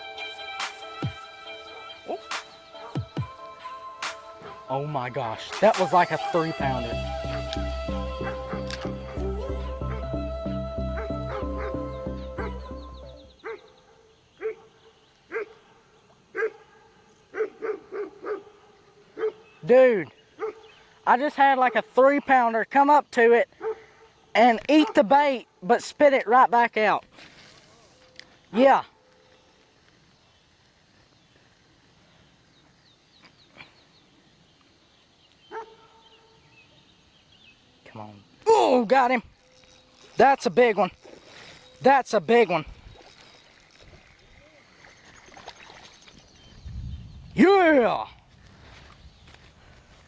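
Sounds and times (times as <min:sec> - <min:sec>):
background music: 0:00.0 - 0:13.3
dog yipping: 0:35.5 - 0:36.0.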